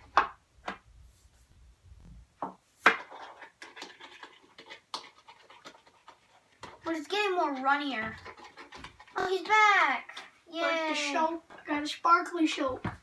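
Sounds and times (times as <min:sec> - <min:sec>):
utensil scraping against bowl: 0:03.2 - 0:09.3.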